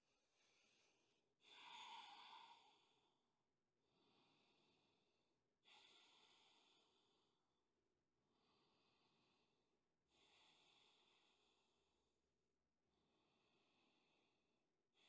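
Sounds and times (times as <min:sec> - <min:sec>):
slow airy breathing: 0:00.2 - 0:03.2, 0:03.9 - 0:07.4, 0:08.3 - 0:11.9.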